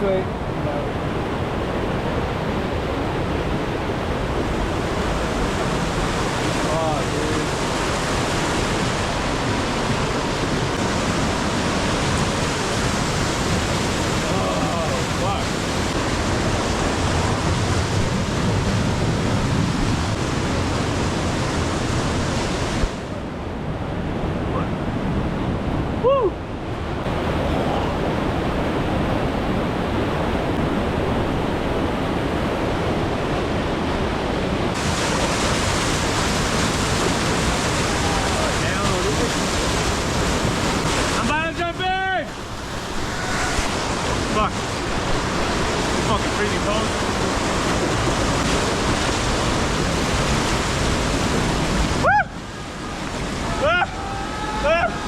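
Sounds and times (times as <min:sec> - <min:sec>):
waterfall rushing: 0:00.0 - 0:23.0, 0:34.7 - 0:55.0.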